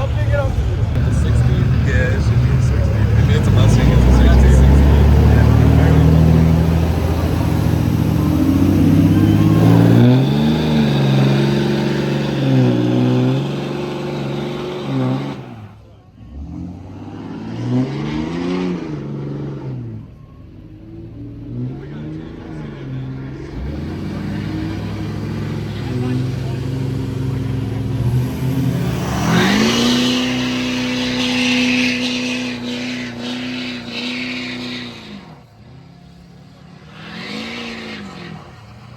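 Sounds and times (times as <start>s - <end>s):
vehicle engine revving: 0.0s - 38.9s.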